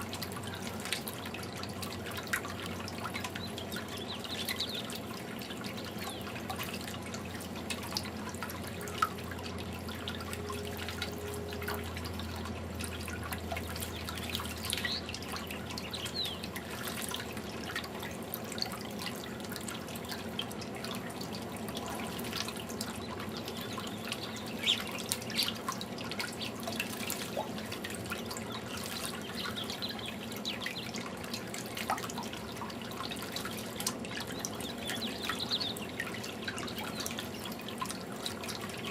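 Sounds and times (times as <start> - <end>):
fountain water trickling: 0.0 - 38.9
low hum: 2.3 - 17.7.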